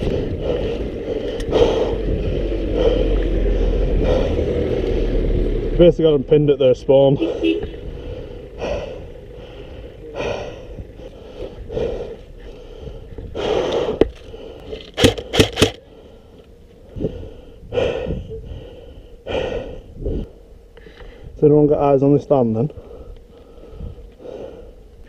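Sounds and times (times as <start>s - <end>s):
person breathing heavily: 0.0s - 5.8s, 7.1s - 21.4s, 22.7s - 25.0s
airsoft gun shots: 15.0s - 15.8s.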